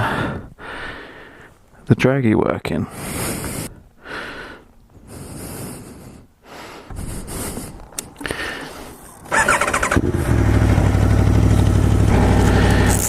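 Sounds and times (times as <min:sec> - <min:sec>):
wind noise: 0:06.9 - 0:10.4
motorcycle engine starting: 0:06.9 - 0:13.0.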